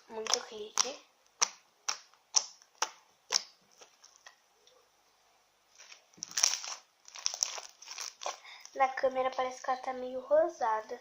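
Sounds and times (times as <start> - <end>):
slime crackling and squishing: 0.0 - 4.4, 5.7 - 10.0.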